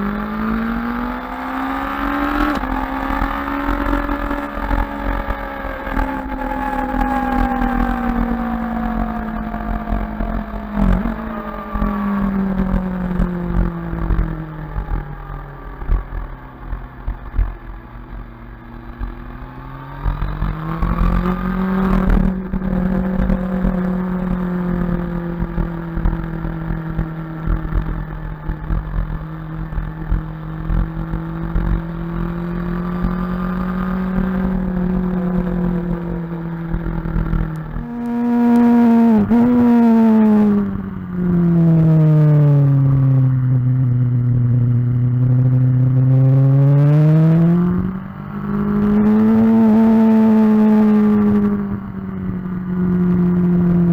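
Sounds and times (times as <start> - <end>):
sport bike engine running: 0.0 - 53.9
low buffeting rumble: 2.7 - 18.4, 21.2 - 30.1, 34.2 - 46.6.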